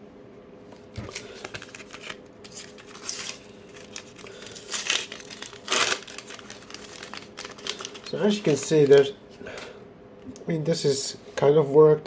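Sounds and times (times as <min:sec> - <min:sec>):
stickers rustling: 0:01.0 - 0:09.2
wrapper tearing and crinkling: 0:01.1 - 0:09.1.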